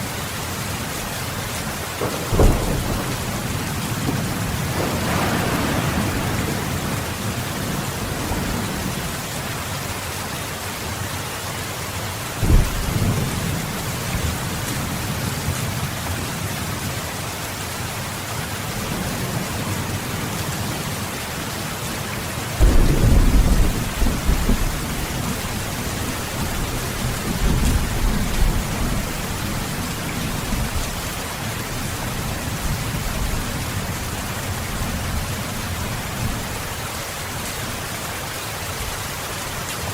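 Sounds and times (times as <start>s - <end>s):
heavy rain: 0.0s - 39.9s
thunder rumbling: 1.8s - 9.5s, 12.4s - 15.6s, 22.6s - 36.7s.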